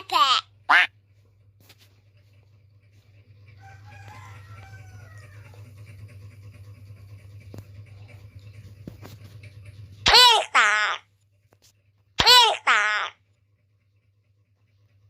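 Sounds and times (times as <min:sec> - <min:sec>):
rooster crowing: 0:03.6 - 0:05.8.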